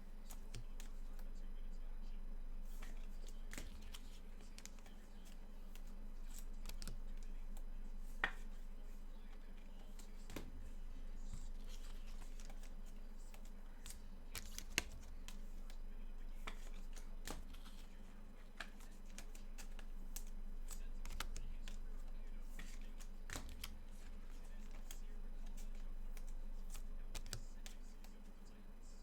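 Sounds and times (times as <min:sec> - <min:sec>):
steady low hum: 0:00.0 - 0:29.0
cards and packaging rustling: 0:09.8 - 0:28.3.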